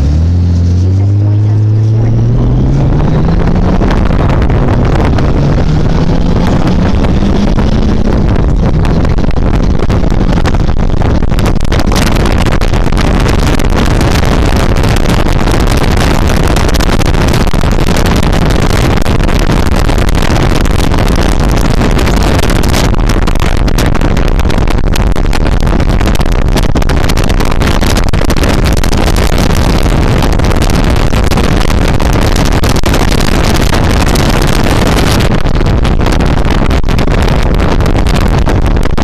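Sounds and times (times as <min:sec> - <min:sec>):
motorcycle engine revving: 0:00.0 - 0:23.2
wind buffeting microphone: 0:00.0 - 0:39.0.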